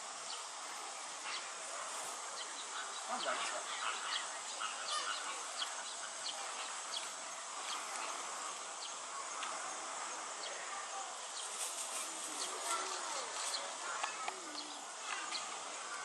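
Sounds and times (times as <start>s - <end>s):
insect drone: 0.0s - 16.0s.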